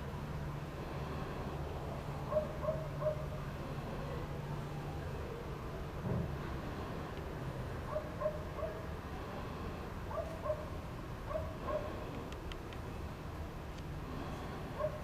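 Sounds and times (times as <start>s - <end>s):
dog yipping: 2.3s - 3.3s, 7.9s - 8.8s, 10.1s - 10.7s.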